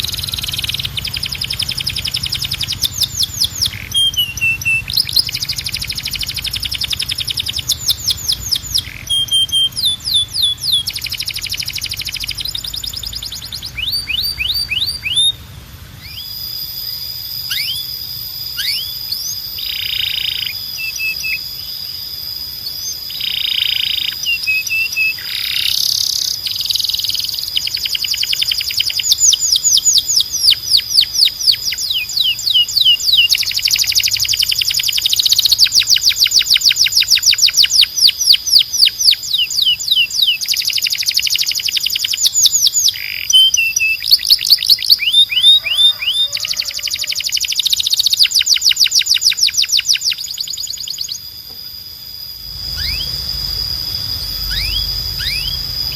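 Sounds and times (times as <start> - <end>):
canary singing: 0.0 - 55.9
steady high tone: 51.2 - 55.9.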